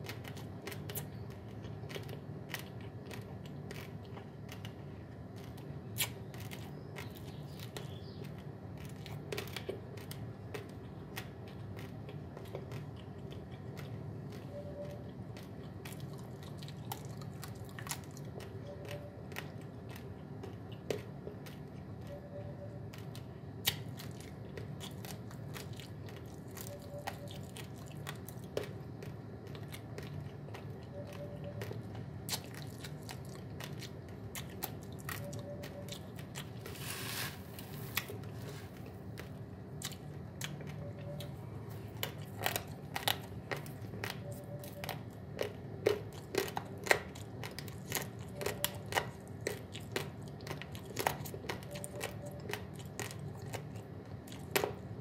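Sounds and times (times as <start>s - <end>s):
dry rice crunched and chewed: 0.0s - 55.0s
hand scooping dry rice: 36.7s - 38.8s.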